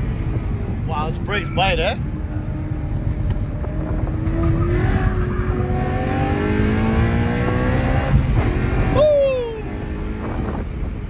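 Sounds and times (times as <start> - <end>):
car engine accelerating hard: 2.1 - 11.0.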